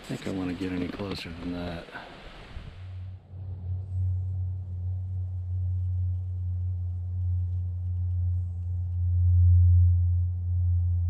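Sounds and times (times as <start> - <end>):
deep rumbling hum: 2.5 - 11.0.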